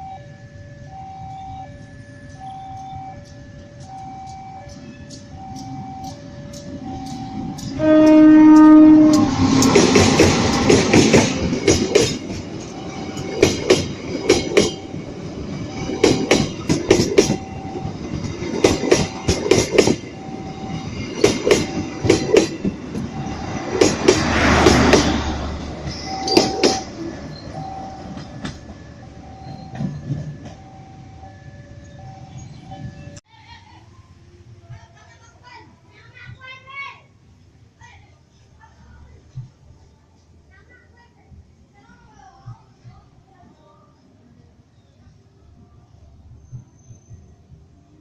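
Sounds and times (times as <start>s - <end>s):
train wheels clacking on rail joints: 2.8s - 30.8s.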